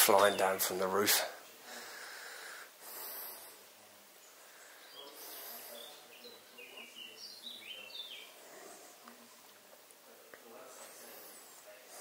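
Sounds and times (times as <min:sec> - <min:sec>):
faint bird chirps: 0:04.2 - 0:09.0.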